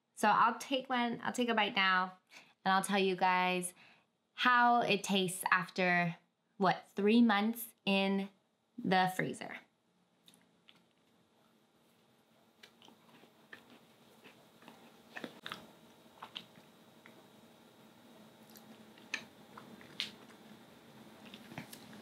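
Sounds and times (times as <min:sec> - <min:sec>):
chewing crunchy macaron: 0:12.6 - 0:17.2, 0:18.4 - 0:20.5, 0:21.2 - 0:22.0.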